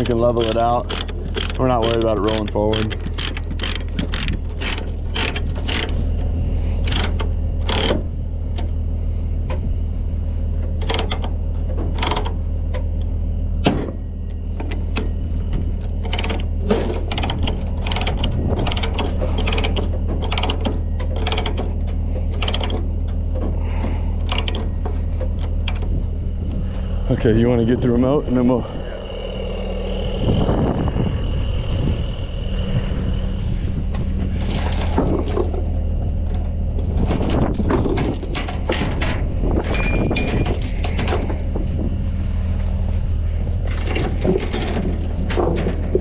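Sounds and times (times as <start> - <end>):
ratchet pawl clicking: 0.0 - 6.0, 6.9 - 8.0, 17.1 - 21.7
truck engine idling: 0.0 - 46.0.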